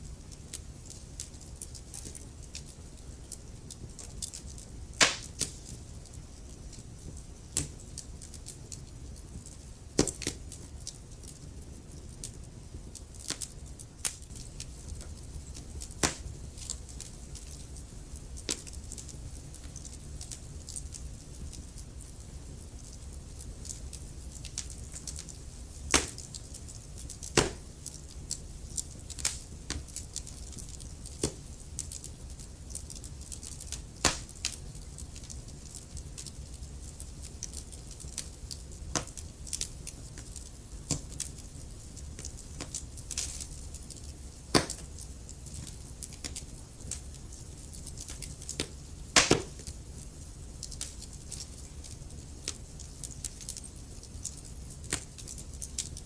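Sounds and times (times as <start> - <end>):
low rumble of flames: 0.0 - 56.0
wood fire crackling: 0.0 - 56.0
logs popping and snapping: 5.0 - 5.8, 15.9 - 16.7, 25.9 - 26.3, 27.2 - 27.7, 33.6 - 34.6, 44.5 - 45.0, 48.0 - 49.8.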